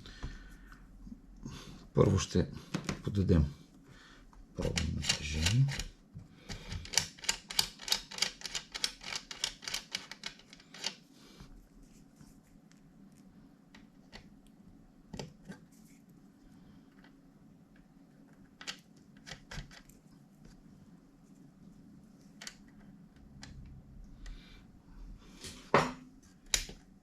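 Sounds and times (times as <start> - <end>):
sharp mechanical clicks: 6.8 - 11.0.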